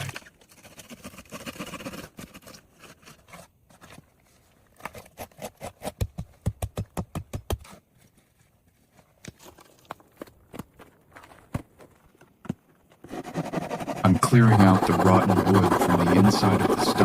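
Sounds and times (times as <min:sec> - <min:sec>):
handsaw cutting wood: 0:13.0 - 0:17.0.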